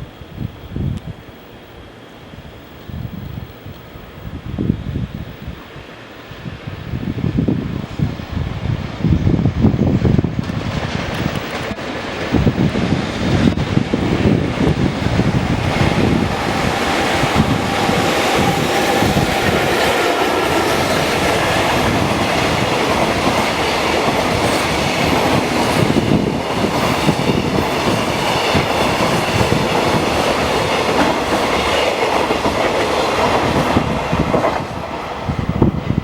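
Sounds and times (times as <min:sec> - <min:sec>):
freight train wheels clacking: 0:09.1 - 0:36.0.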